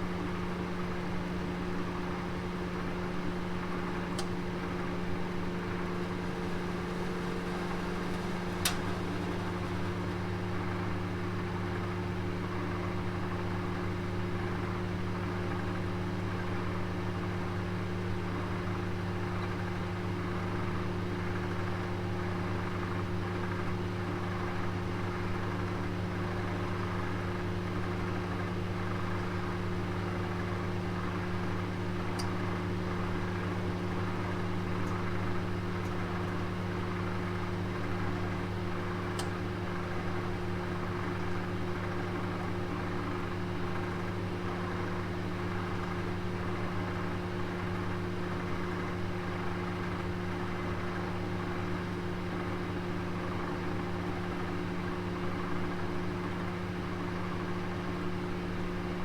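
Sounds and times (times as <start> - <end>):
oven humming: 0.0 - 22.7, 26.3 - 50.9
oven clicks: 3.5 - 11.9, 38.5 - 39.8.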